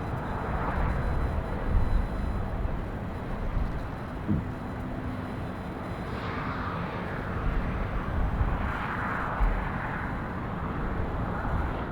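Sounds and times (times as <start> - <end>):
jet engine roar: 3.9 - 11.9.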